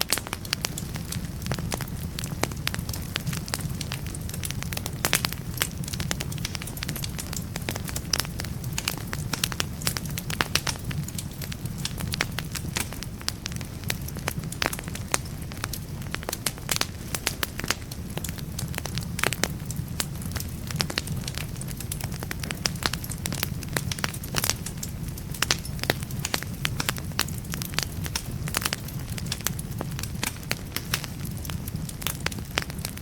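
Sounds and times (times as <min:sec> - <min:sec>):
logs crackling and popping: 0:00.0 - 0:33.0
low rumble of flames: 0:00.0 - 0:33.0.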